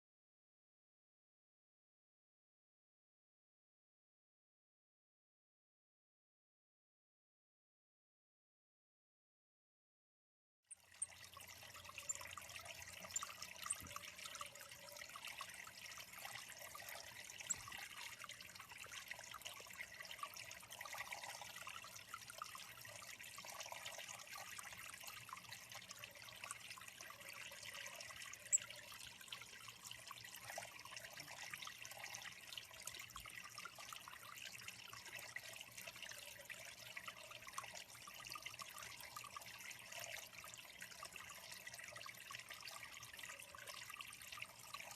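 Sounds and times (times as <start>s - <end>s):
water trickling into pond: 10.7s - 44.9s.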